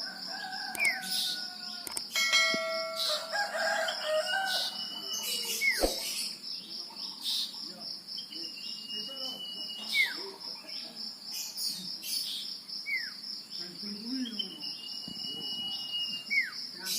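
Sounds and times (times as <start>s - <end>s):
pulsing insect trill: 0.0s - 16.9s
bird whistling song: 3.0s - 6.4s, 8.2s - 10.4s, 14.2s - 16.9s.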